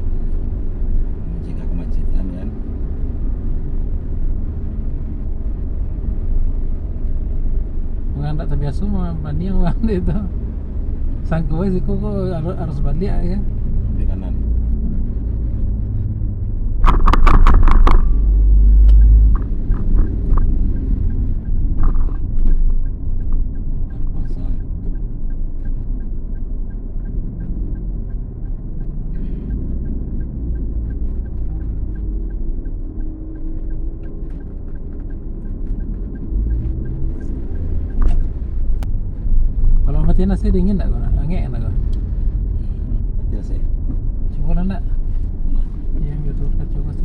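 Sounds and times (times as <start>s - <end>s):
car cabin road rumble: 0.0s - 47.0s
light even ticking: 0.1s - 47.0s
sharp clicks: 16.8s - 38.9s.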